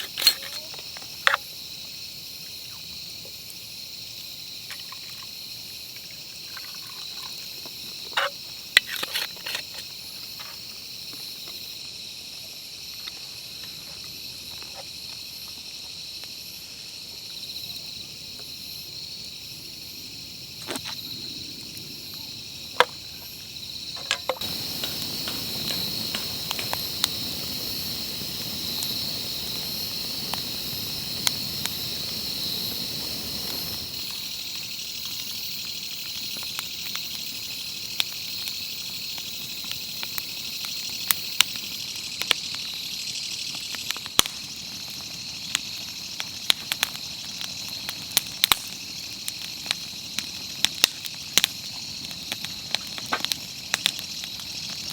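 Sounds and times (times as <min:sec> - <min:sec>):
insects chirring: 0:00.0 - 0:54.9
sharp clicks and crackles: 0:24.0 - 0:31.8.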